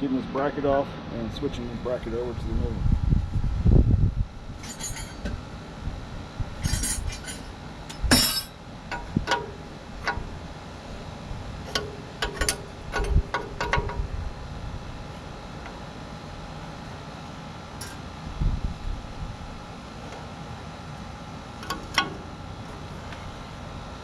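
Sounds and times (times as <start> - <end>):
metal tools clinking: 4.6 - 5.3, 6.6 - 8.6.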